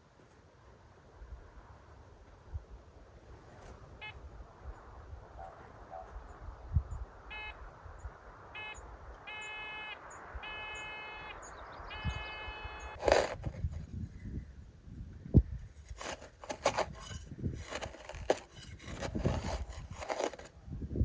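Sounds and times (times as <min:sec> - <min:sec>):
faint bird chirps: 0:04.8 - 0:13.0
metal detector beeping: 0:07.3 - 0:07.6, 0:08.6 - 0:13.0.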